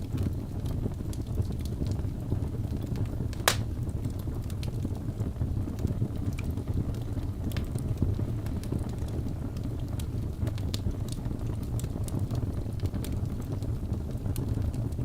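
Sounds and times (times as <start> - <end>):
logs burning in fireplace: 0.0 - 15.0.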